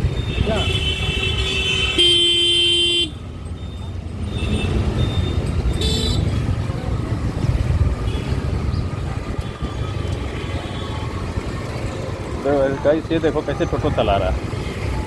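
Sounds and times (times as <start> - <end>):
road and wind rumble: 0.0 - 15.0
vehicle horn toots: 0.3 - 3.2.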